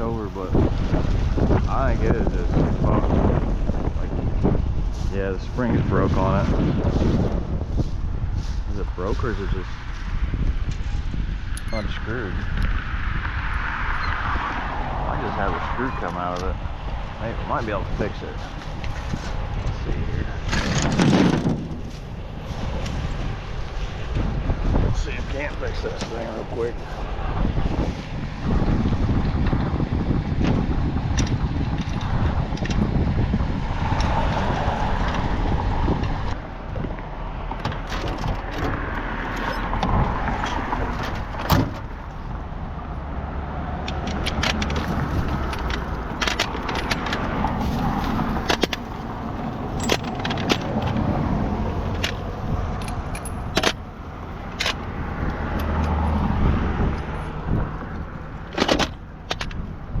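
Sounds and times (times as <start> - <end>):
passing road traffic: 0.0 - 60.0
wind rumbling on microphone: 0.0 - 60.0
metal clinks and clicks: 43.8 - 47.5, 49.7 - 51.1, 51.9 - 56.1.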